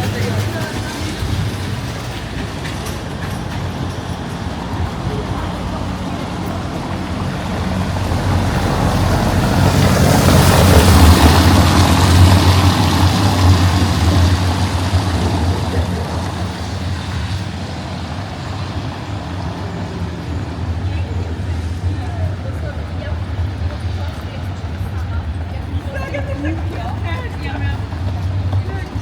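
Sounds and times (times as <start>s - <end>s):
low engine drone: 3.7s - 25.0s.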